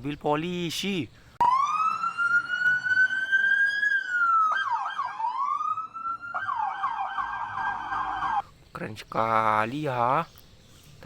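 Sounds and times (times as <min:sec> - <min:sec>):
electronic police siren: 0:01.4 - 0:08.4.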